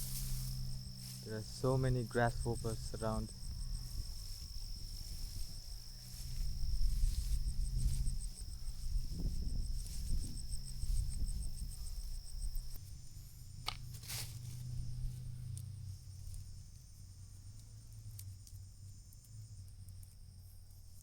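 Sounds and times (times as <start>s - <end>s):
low rumble: 0.0s - 12.8s
insect fast high chirp: 0.0s - 17.8s
insect high-pitched buzz: 0.0s - 21.0s.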